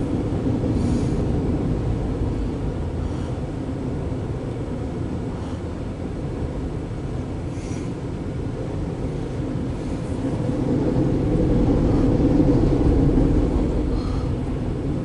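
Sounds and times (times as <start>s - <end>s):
train rolling past rumble: 0.0s - 15.0s.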